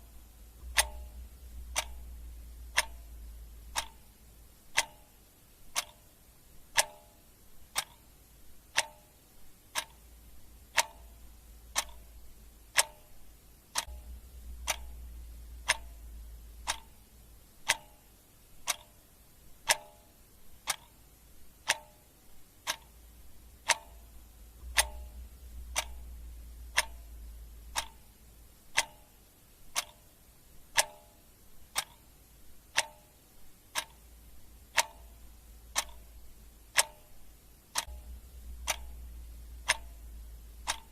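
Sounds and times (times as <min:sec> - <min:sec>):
low rumble: 0:00.0 - 0:04.5, 0:13.9 - 0:16.8, 0:24.1 - 0:28.5, 0:37.9 - 0:40.9
clock ticking: 0:00.0 - 0:40.9.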